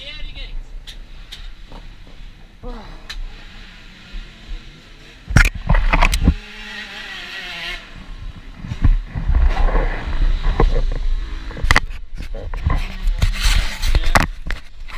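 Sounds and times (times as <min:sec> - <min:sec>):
dirt bike engine revving: 0:01.0 - 0:11.7.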